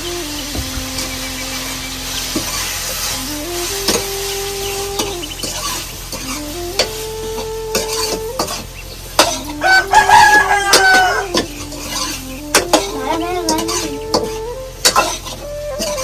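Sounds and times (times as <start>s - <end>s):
held tone shifting pitch: 0.0s - 16.0s
utensils clinking in a pot: 5.0s - 7.0s, 7.7s - 16.0s
rooster crowing: 9.2s - 14.5s.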